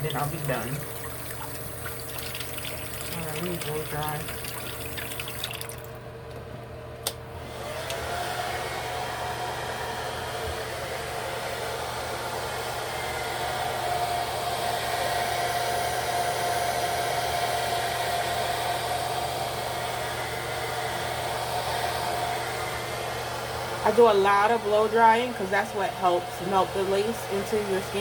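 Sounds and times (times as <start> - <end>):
hair dryer blowing: 0.0 - 2.1, 7.3 - 28.0
hair dryer switch click: 7.8 - 8.0.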